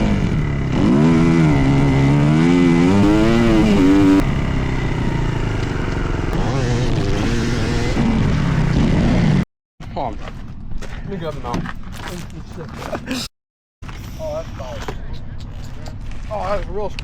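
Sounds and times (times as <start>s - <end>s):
dirt bike engine revving: 0.0s - 9.5s.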